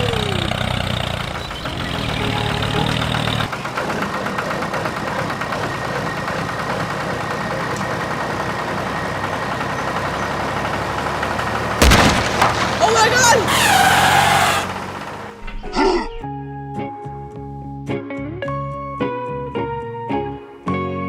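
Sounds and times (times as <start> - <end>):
small tractor engine chugging: 0.0 - 15.6.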